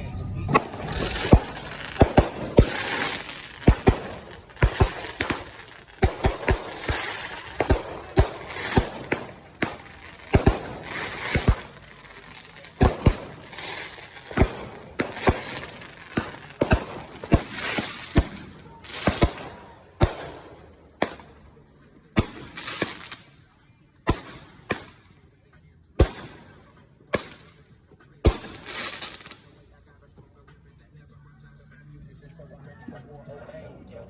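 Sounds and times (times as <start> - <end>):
fireworks bangs and pops: 0.4 - 23.4, 24.1 - 25.1, 26.0 - 29.6
fireworks hissing crackling spray: 0.5 - 20.4, 22.2 - 23.4, 28.4 - 29.5.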